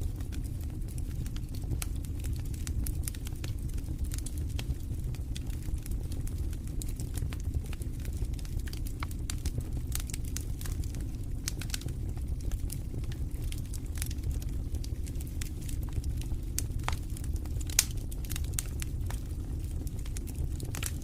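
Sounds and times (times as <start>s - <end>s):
burning logs popping and crackling: 0.0s - 21.0s
fire flames rumbling: 0.0s - 21.0s.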